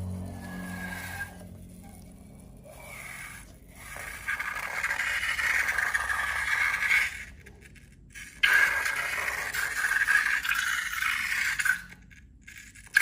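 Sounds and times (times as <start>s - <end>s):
scraping and rubbing by hand: 0.0s - 13.0s.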